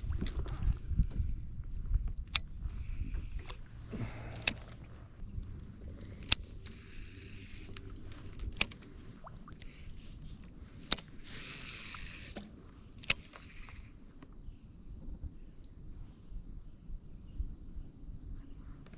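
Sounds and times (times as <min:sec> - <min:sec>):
kayak paddle knocking: 0:03.0 - 0:05.1
water swishing: 0:05.9 - 0:12.5.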